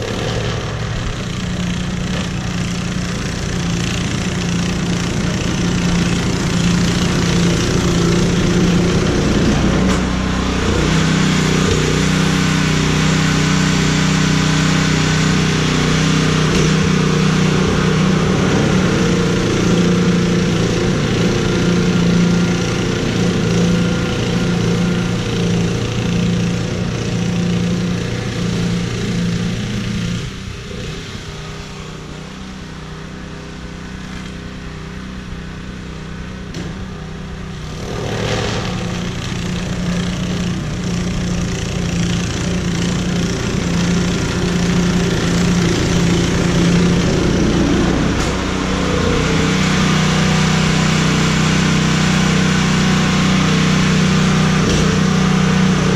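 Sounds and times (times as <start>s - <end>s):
engine running: 0.0s - 55.9s.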